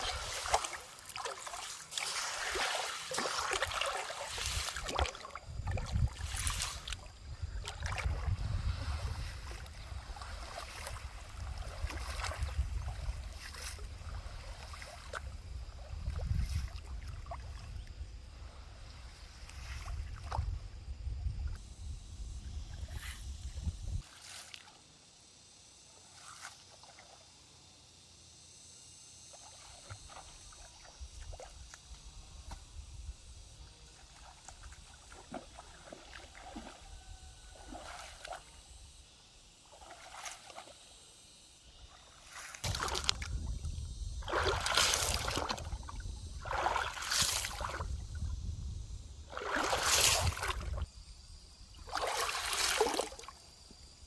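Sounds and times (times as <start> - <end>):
water splashing in a stream: 0.0 - 20.6, 29.3 - 32.7, 33.8 - 51.0, 51.7 - 53.8.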